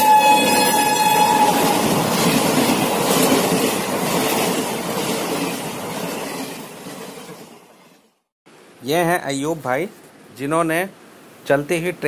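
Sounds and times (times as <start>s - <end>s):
train horn blast: 0.0s - 2.0s
train rushing past on rails: 0.0s - 8.1s.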